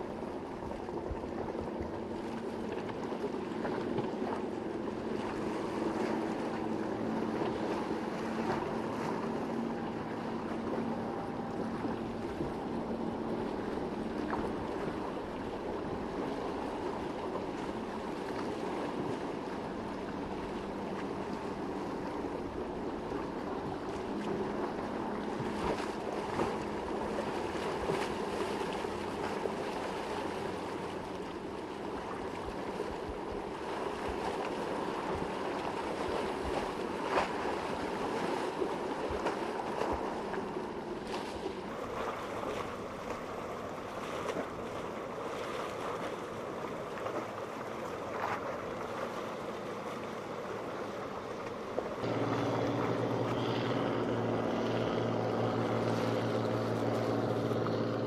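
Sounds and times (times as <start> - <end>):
boat engines droning: 0.0 - 58.0
wind: 0.0 - 58.0
breaking waves: 31.9 - 58.0.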